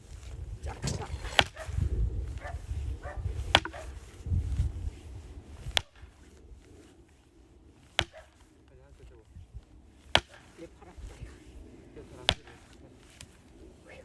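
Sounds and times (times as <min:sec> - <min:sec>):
axe splitting firewood: 0:00.6 - 0:01.7, 0:03.4 - 0:03.9, 0:05.6 - 0:06.4, 0:07.8 - 0:08.7, 0:09.6 - 0:11.4, 0:12.2 - 0:13.5.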